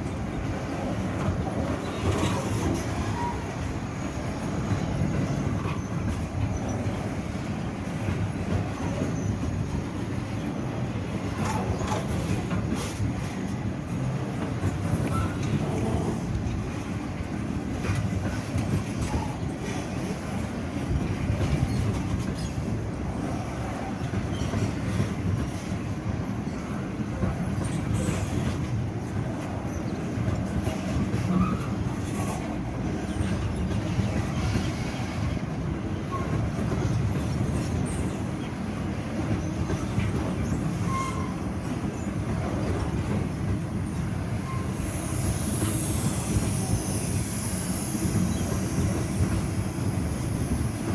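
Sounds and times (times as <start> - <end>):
train wheels rumbling on rail: 0.0 - 50.9
faint wheel squeals: 40.4 - 42.1.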